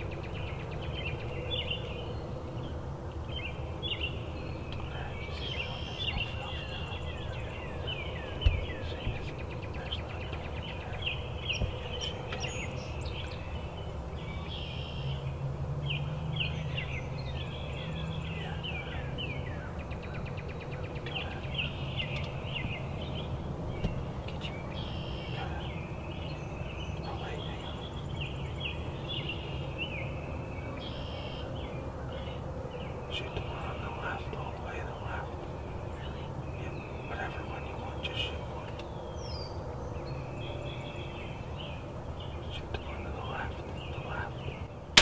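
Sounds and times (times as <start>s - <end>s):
steady low rumble: 0.0s - 30.8s
songbirds chirping and trilling: 0.0s - 45.0s.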